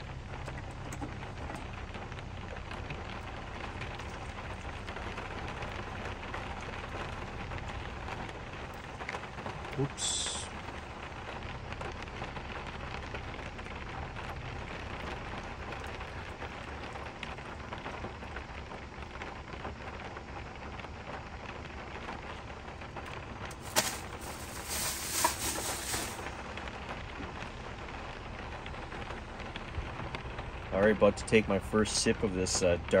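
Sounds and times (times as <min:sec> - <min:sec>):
short rush of noise: 0:23.6 - 0:26.3.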